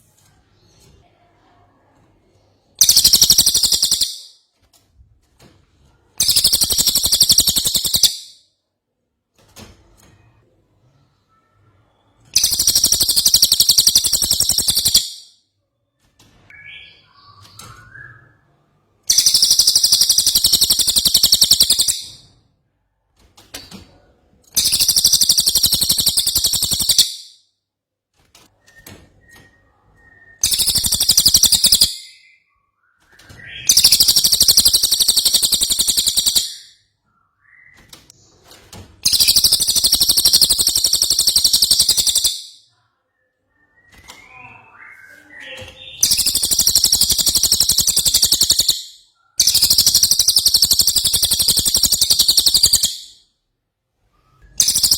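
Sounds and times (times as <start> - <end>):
soft bird chirps: 0.2 - 4.4, 6.1 - 8.4, 10.0 - 22.4, 23.9 - 27.3, 28.6 - 53.3, 54.0 - 54.9
songbird fast high trill: 2.8 - 4.3, 12.4 - 15.2, 19.1 - 22.2, 24.6 - 27.2, 30.4 - 32.0, 33.7 - 36.7, 39.1 - 42.6, 46.0 - 53.2, 54.6 - 54.9.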